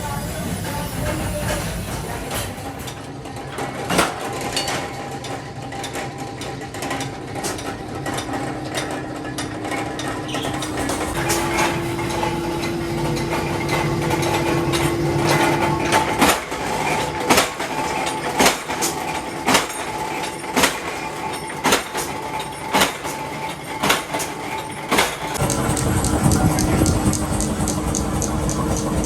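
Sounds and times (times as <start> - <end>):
workshop machine hum: 0.0 - 29.0
ringing metallic knocks: 2.3 - 29.0.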